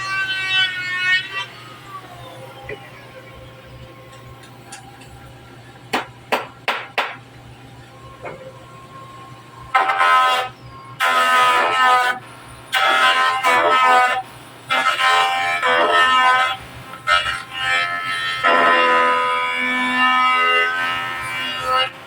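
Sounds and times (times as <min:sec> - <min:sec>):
horn blasts: 0:08.7 - 0:16.5.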